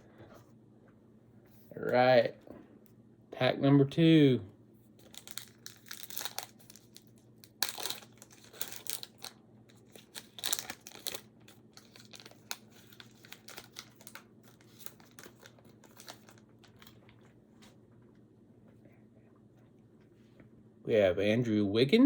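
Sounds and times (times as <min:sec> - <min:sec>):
plastic wrapper crinkling and tearing: 0:05.0 - 0:17.2.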